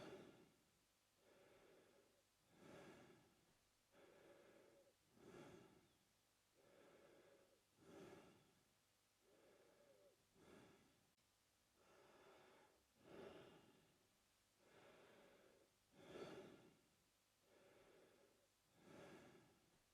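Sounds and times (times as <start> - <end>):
man breathing through mouth: 0.0 - 0.5, 1.2 - 3.3, 3.9 - 6.0, 6.6 - 8.6, 9.2 - 11.0, 11.8 - 13.8, 14.6 - 16.8, 17.4 - 19.6.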